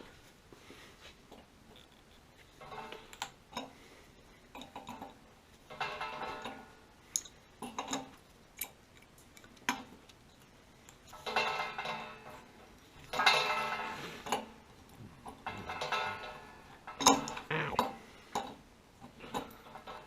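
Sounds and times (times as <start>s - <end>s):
metal objects clinking: 15.2s - 17.9s
ringing metal clatters: 15.3s - 17.5s.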